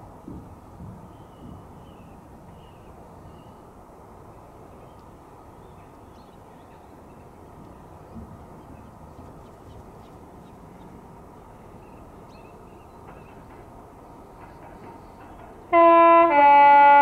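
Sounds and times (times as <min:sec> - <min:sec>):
birds calling: 0:04.4 - 0:15.8.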